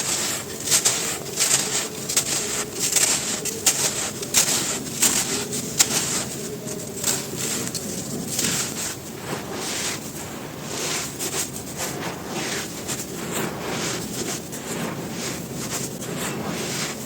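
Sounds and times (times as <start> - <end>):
dry cylinders crumbling and crunching: 0.0 - 9.1.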